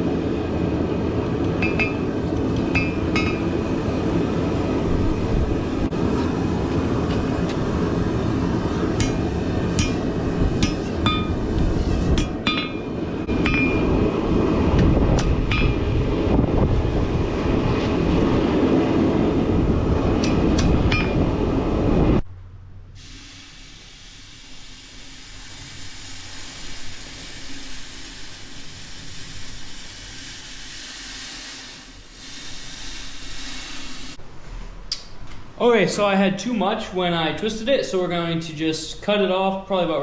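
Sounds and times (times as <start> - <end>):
forge roaring: 2.0 - 22.2.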